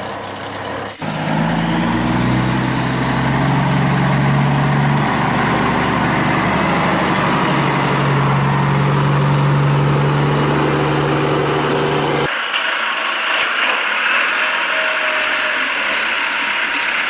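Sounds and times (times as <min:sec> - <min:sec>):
steady engine-like hum: 0:01.0 - 0:12.3.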